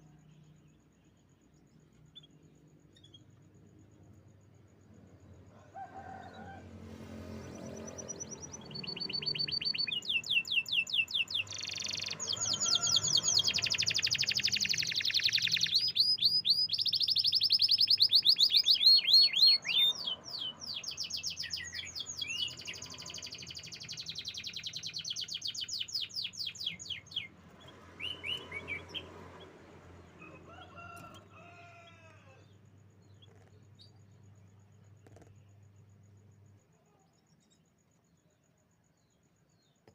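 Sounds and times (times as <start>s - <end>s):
canary singing trills: 7.2s - 35.8s.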